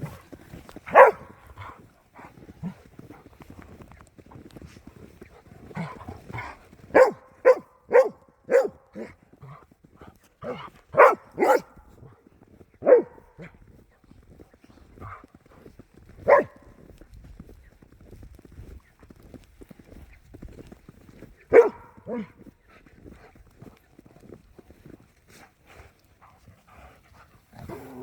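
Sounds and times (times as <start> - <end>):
dog barking: 0.9 - 1.4, 5.8 - 9.1, 10.4 - 11.8, 12.8 - 13.5, 16.2 - 16.6, 21.5 - 22.4.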